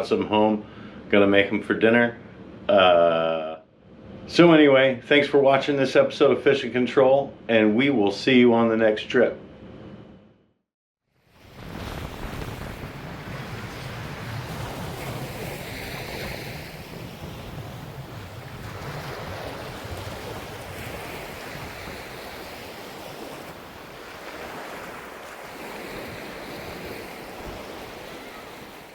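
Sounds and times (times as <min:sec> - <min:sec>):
surf washing onto beach: 0:11.3 - 0:28.9
wind rumbling on microphone: 0:11.3 - 0:28.9.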